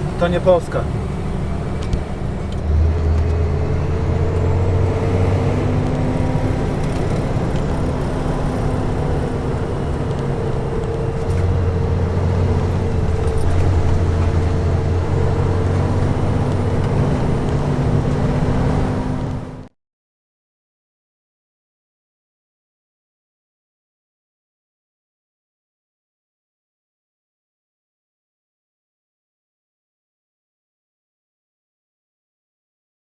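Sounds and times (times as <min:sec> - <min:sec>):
truck diesel engine droning: 0:00.0 - 0:19.7.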